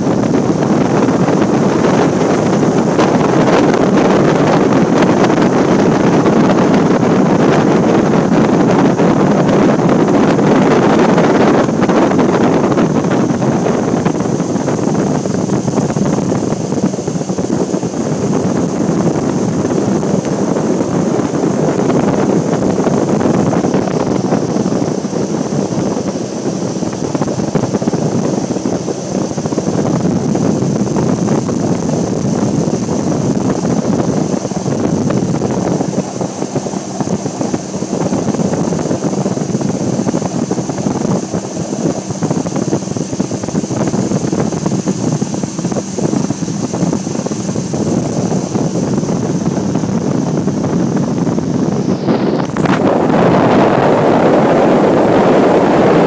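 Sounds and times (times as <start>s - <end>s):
boat motor running: 0.0s - 56.0s
wind noise on microphone: 0.0s - 56.0s.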